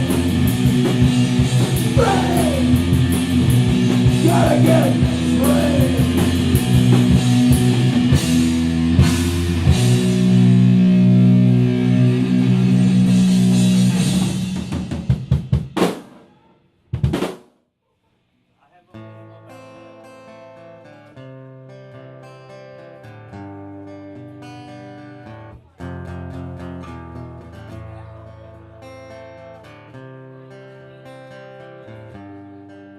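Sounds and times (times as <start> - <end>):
rock band playing: 0.0 - 16.2
acoustic guitar playing: 19.1 - 32.9.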